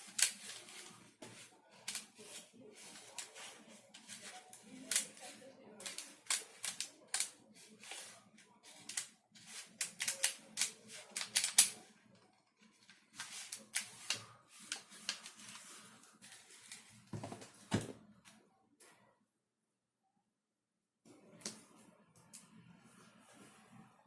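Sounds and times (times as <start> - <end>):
plastic parts clicking and clattering: 0.0 - 11.9, 12.6 - 18.0.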